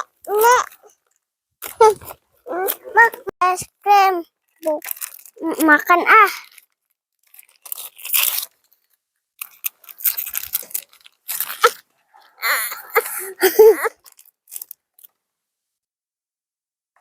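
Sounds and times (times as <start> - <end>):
crunching and chewing: 4.4 - 12.4.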